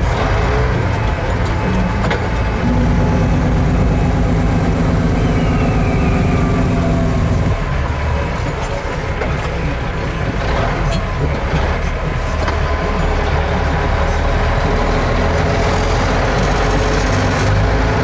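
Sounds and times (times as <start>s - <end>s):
truck diesel engine running: 0.0s - 18.0s.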